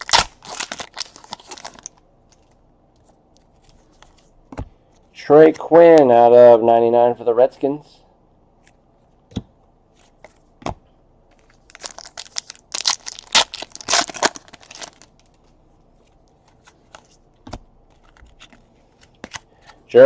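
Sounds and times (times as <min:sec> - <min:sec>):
wrapper tearing and crinkling: 0:00.0 - 0:02.4, 0:11.5 - 0:15.3.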